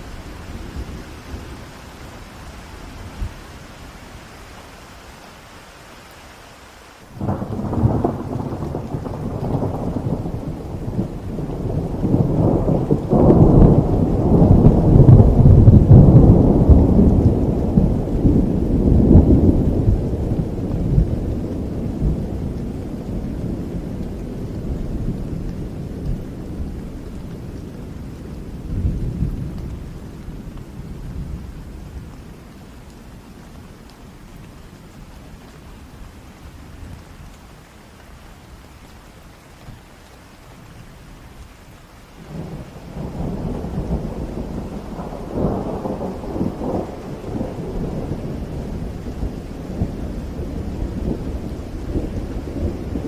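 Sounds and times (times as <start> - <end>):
steady rain: 0.0 - 53.0
thunder rolling: 7.2 - 26.8, 42.3 - 53.0.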